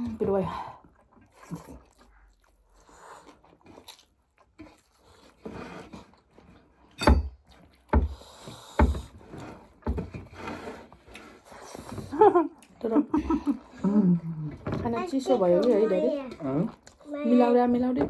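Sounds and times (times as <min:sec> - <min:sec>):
sharp knocks with dull thump: 0:07.9 - 0:08.2, 0:08.8 - 0:09.2.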